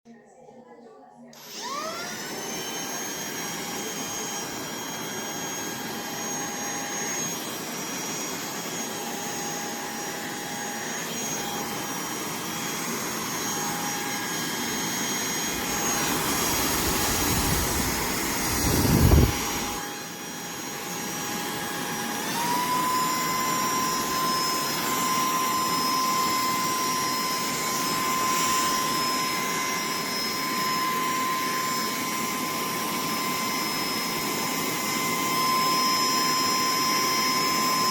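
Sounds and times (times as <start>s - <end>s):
handheld vacuum motor whine: 1.3s - 37.9s
rush of air: 15.6s - 19.8s.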